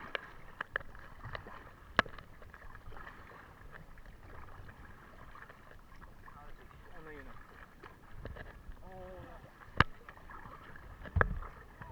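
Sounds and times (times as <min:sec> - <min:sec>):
paddle splashing water: 0:00.0 - 0:11.9.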